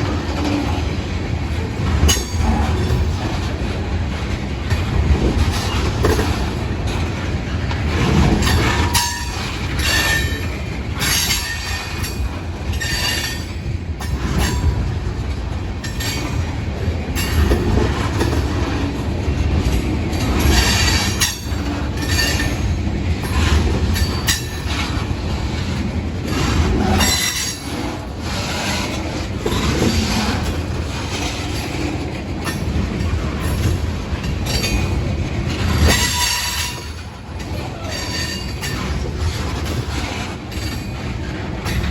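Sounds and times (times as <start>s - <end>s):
freight train rumbling: 0.0s - 41.9s
wheels clicking and clattering: 0.0s - 41.9s
train wheels squealing: 35.8s - 39.0s.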